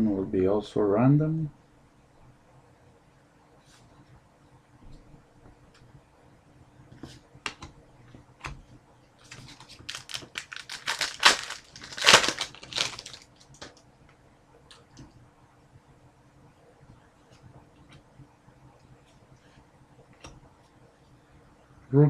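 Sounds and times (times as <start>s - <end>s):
wrapper tearing and crinkling: 9.2s - 13.8s.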